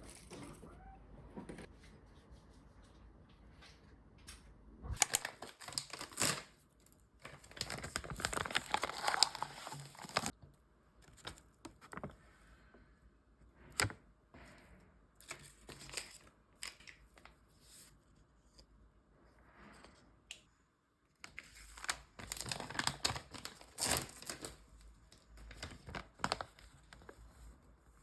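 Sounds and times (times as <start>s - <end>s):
packaging crinkling and rustling: 5.0s - 10.4s, 21.2s - 27.5s.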